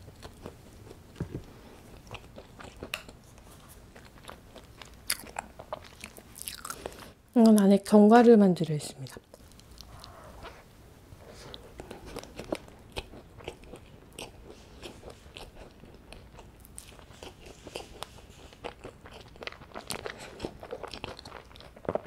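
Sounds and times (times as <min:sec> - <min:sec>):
crisp chewing crunches: 0:00.0 - 0:07.1, 0:11.4 - 0:22.0.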